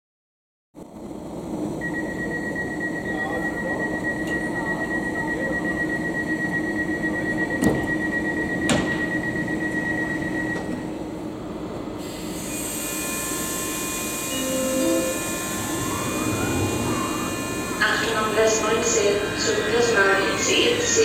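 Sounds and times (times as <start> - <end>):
train rumble: 13.0 - 21.0
high-pitched tone: 14.2 - 19.7.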